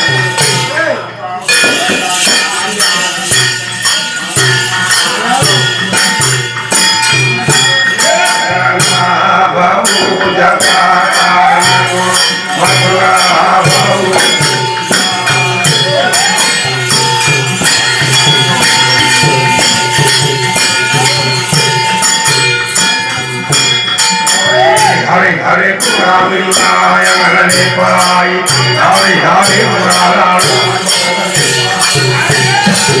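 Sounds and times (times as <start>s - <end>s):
jingling rattling percussion: 0.0s - 33.0s.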